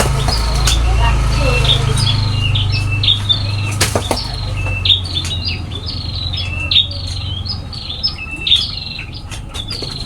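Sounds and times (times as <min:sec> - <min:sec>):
sharp knocks: 0:00.0 - 0:00.9, 0:03.7 - 0:04.8
small birds chirping: 0:00.0 - 0:10.0.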